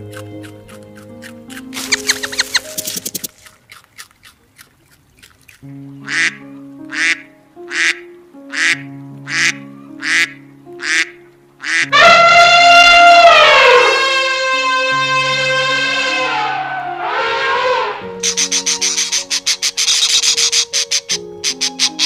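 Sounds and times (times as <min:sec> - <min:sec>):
background music: 0:00.0 - 0:03.8, 0:05.5 - 0:22.0
duck quacking: 0:06.0 - 0:22.0
loud drawn-out call: 0:08.6 - 0:19.6.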